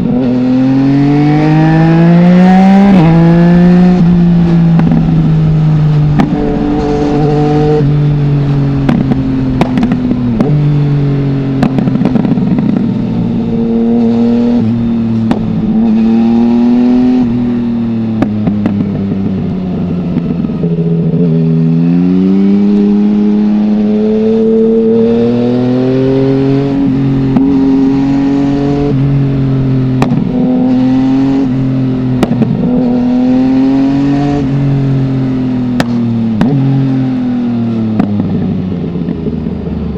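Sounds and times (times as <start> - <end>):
motorcycle engine under load: 0.0 - 39.9.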